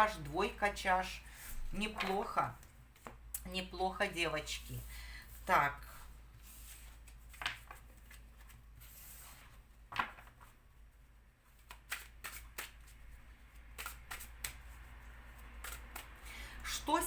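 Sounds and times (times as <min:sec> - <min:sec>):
cards being shuffled: 0:01.6 - 0:03.2, 0:06.4 - 0:10.6, 0:11.5 - 0:16.3.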